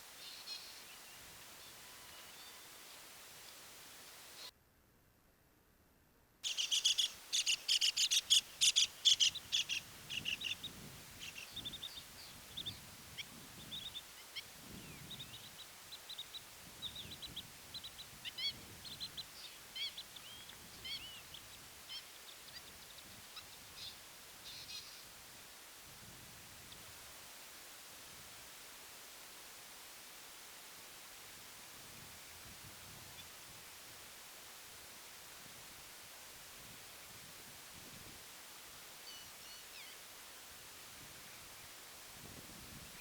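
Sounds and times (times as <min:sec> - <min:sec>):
birds calling sharply: 0:06.4 - 0:12.1
soft bird chirps: 0:06.4 - 0:25.1.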